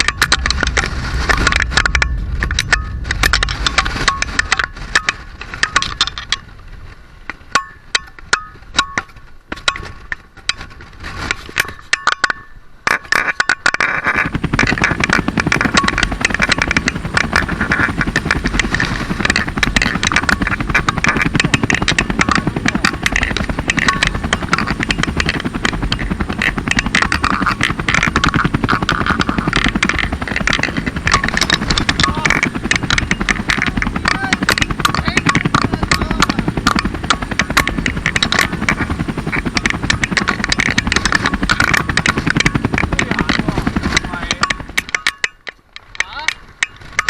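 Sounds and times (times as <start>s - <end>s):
strong wind: 0.0s - 7.3s, 14.2s - 45.0s
rapid rattling or flapping: 14.0s - 45.1s.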